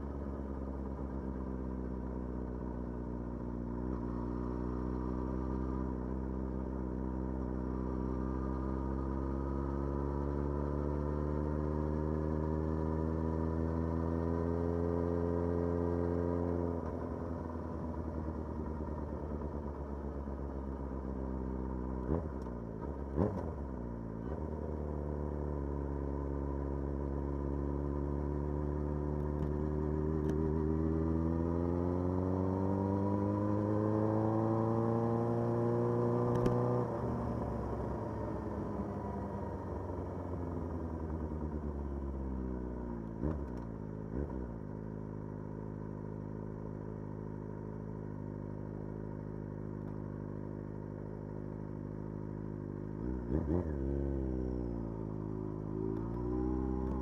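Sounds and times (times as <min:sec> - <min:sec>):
motorcycle engine revving: 0:29.4 - 0:41.9, 0:53.0 - 0:57.0.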